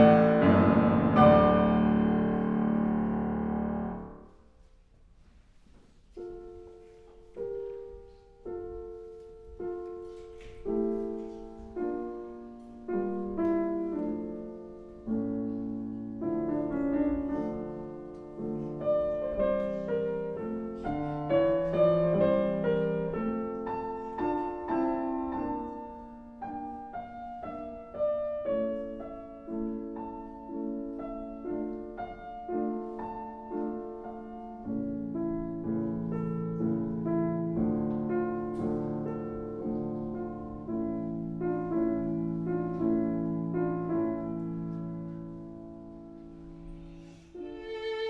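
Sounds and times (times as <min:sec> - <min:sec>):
slow classical piano: 0:00.0 - 0:48.0.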